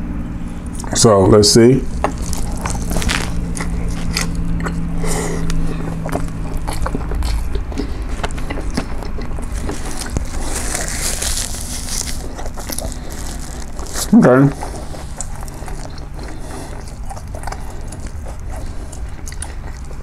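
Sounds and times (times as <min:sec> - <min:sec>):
steady low hum: 0:00.0 - 0:20.0
person biting and chewing burger: 0:00.5 - 0:01.1, 0:01.8 - 0:20.0
paper napkin rustling: 0:01.8 - 0:04.4, 0:09.4 - 0:15.5.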